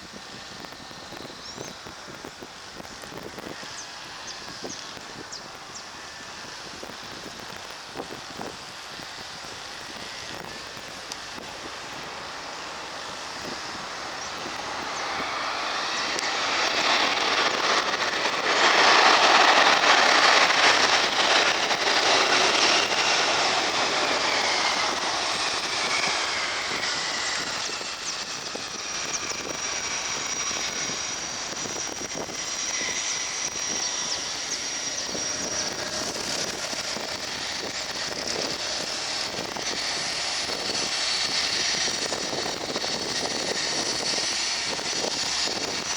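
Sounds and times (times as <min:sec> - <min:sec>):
high steady whine: 0:00.0 - 0:45.9
jet engines with falling whines: 0:00.0 - 0:45.9.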